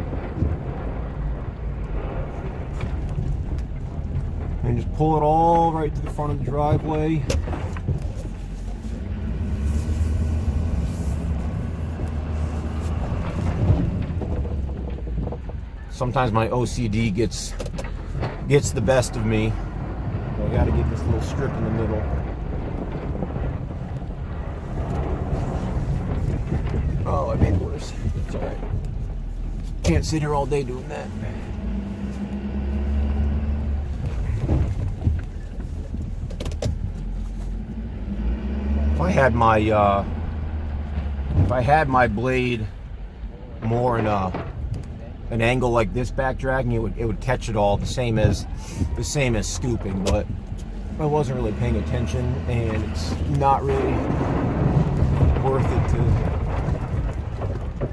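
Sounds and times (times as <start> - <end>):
diesel truck engine rumble: 0.0 - 57.9.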